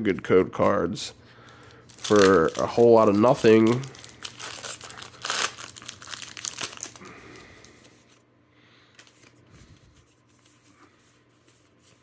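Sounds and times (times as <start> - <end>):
foil pack crinkling: 1.5 - 8.2
cards rustling: 1.6 - 8.2, 8.9 - 12.0.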